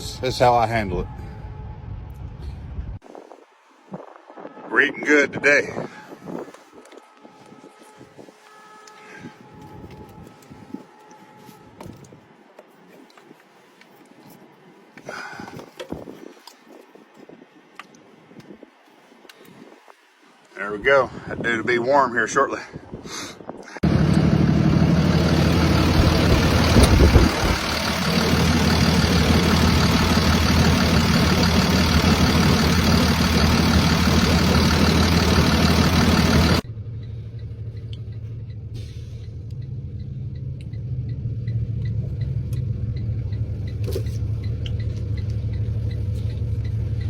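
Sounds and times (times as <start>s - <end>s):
diesel truck engine running: 23.8s - 47.0s.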